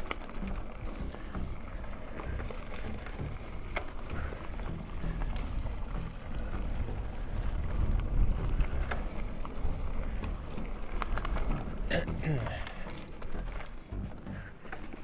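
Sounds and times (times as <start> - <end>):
wind buffeting microphone: 0.0 - 14.5
bike clicks and knocks: 0.0 - 15.0
bike rolling on dirt trail: 0.0 - 15.0.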